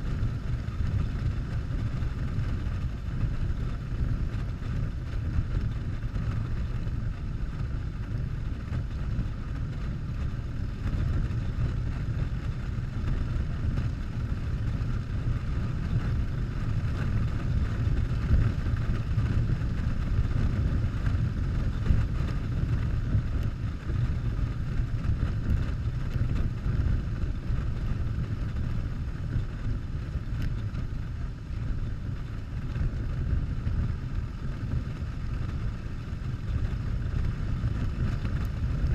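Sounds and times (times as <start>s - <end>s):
motorcycle engine rumbling: 0.0s - 38.9s
wind noise on microphone: 0.0s - 38.9s.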